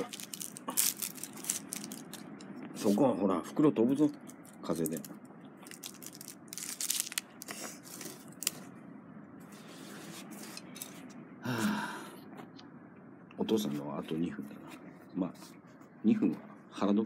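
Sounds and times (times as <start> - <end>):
plastic bag crinkling: 0.0 - 2.4, 4.1 - 8.7.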